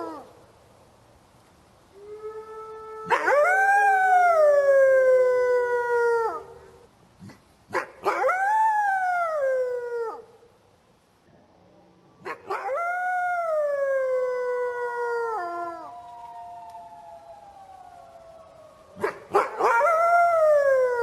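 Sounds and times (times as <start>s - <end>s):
lower steady howl: 0.0s - 7.0s, 8.0s - 21.0s
wolf howling: 2.0s - 6.4s, 12.2s - 21.0s.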